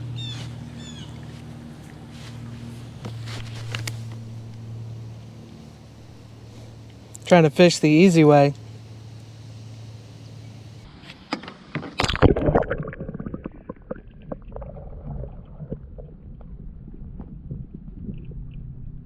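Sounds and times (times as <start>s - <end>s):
low rumble: 0.0s - 7.3s, 12.5s - 19.0s.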